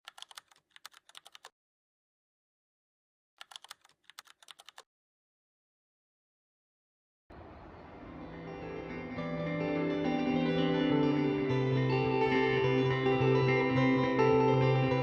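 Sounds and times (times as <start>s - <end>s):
keyboard key clicks: 0.1s - 1.5s, 3.4s - 4.8s.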